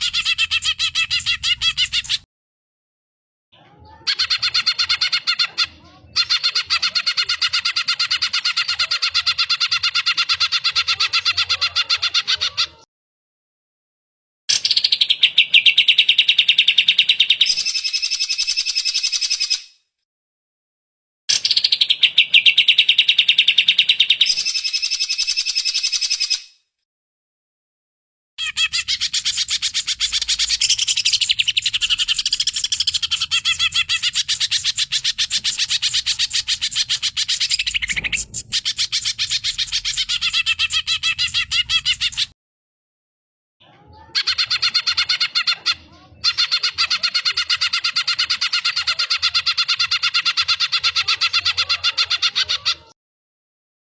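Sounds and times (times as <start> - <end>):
bird singing rapid trill: 0.0 - 2.2, 28.4 - 42.3.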